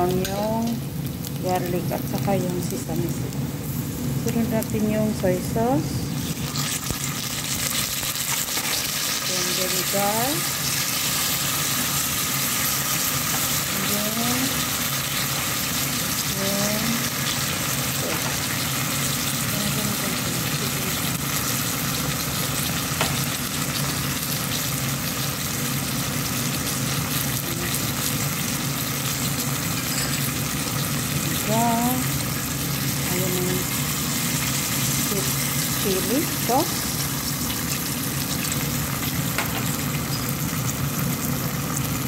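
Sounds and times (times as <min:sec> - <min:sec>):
food sizzling in oil: 0:00.0 - 0:42.0.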